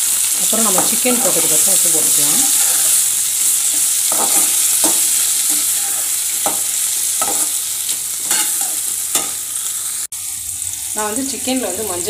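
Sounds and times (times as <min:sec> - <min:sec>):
vegetables sizzling in oil: 0:00.0 - 0:12.0
metal spoon scraping a pan: 0:02.4 - 0:03.0, 0:03.6 - 0:07.6, 0:08.2 - 0:09.4.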